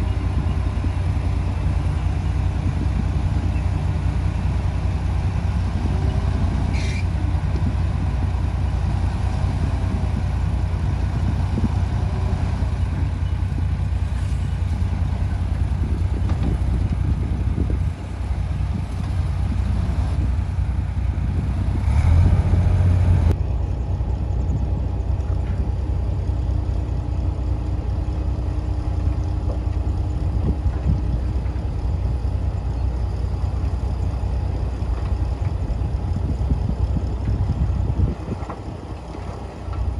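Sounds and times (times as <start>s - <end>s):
heavy diesel machinery engine drone: 0.0s - 39.9s.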